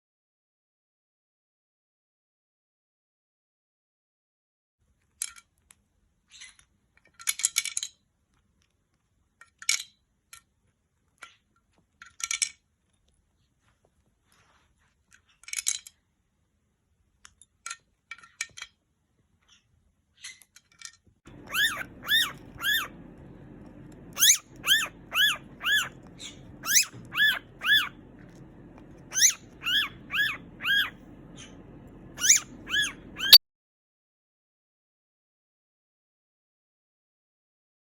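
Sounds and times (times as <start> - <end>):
faint clicks and taps: 21.3 - 33.2
parrot calling: 21.3 - 33.4.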